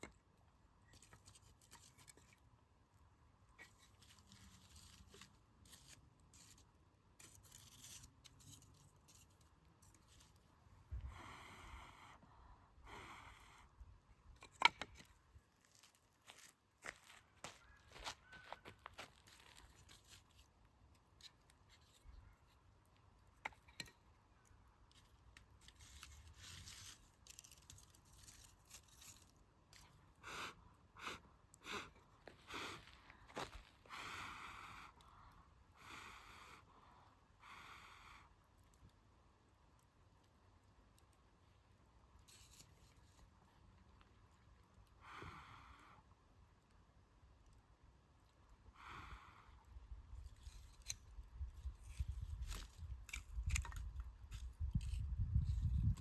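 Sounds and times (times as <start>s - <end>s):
campfire wood crackling: 0.0s - 11.2s, 14.2s - 36.8s, 37.4s - 45.2s, 46.0s - 56.0s
campfire embers crackling: 37.4s - 45.2s, 46.1s - 54.9s.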